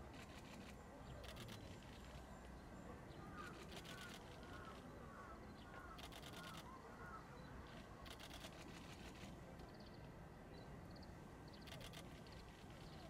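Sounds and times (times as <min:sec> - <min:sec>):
faint chirping bird calls: 0:00.1 - 0:13.0.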